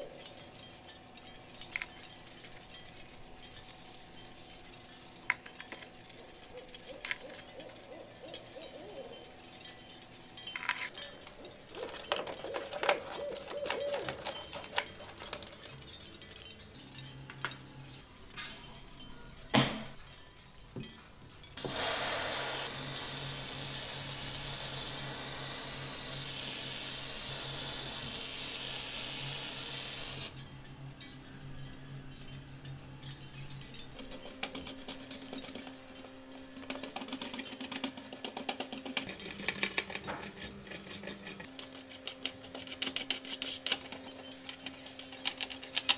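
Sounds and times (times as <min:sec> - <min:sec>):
brush scrubbing paint: 0:00.0 - 0:10.4, 0:11.1 - 0:15.6
toothbrush scrubbing metal parts: 0:00.0 - 0:16.4, 0:21.6 - 0:30.4, 0:33.8 - 0:45.9
light metal clinks: 0:00.0 - 0:21.6, 0:30.3 - 0:45.7
spray hissing: 0:21.6 - 0:30.3.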